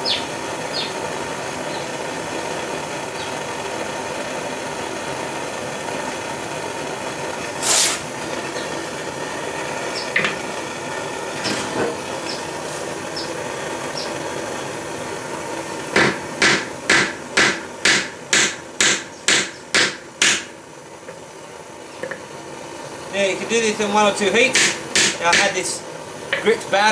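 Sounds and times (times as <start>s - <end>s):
propane torch hissing: 0.0s - 26.9s
hammer striking anvil: 16.0s - 20.5s, 24.5s - 25.6s.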